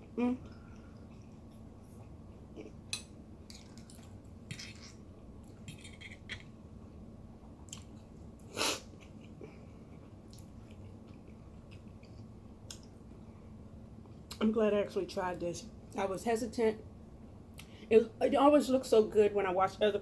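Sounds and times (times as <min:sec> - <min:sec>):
person chewing wetly: 0:07.6 - 0:08.1, 0:08.9 - 0:13.0.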